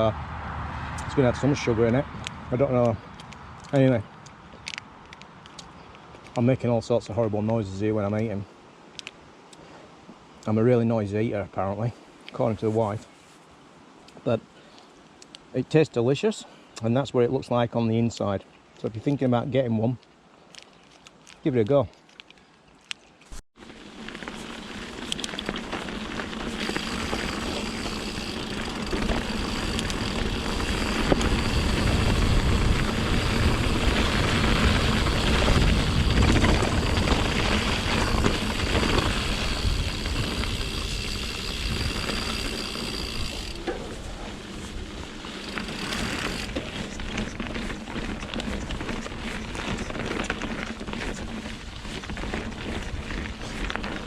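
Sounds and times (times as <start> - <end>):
bike tyres rolling on rocky trail: 23.2 - 54.0
high steady buzz: 23.6 - 49.2.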